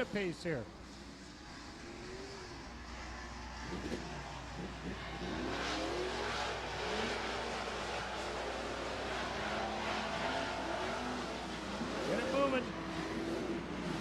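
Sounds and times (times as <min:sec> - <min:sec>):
racing truck engines revving: 0:00.0 - 0:14.0.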